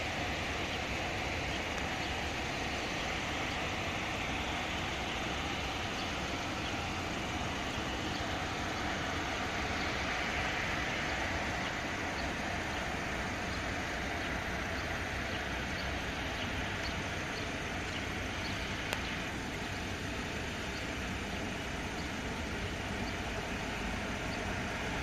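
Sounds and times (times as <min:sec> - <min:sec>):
jet engines rushing: 0:00.0 - 0:25.0.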